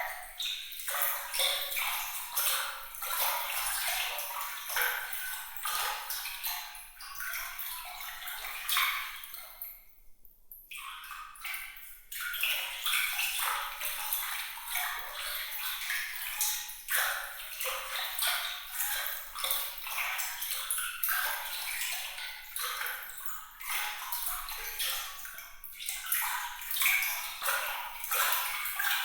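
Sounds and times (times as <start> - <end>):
water trickling and splashing: 0.0 - 9.9, 10.6 - 29.0.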